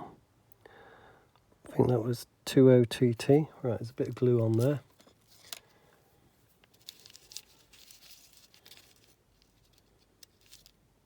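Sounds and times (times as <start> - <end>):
rustling of small parts: 4.0 - 11.0.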